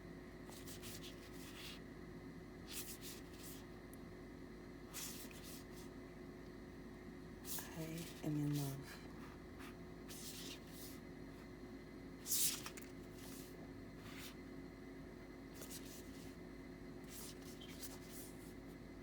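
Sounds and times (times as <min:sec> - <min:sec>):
steady low hum: 0:00.0 - 0:19.0
cards swishing: 0:12.2 - 0:13.5.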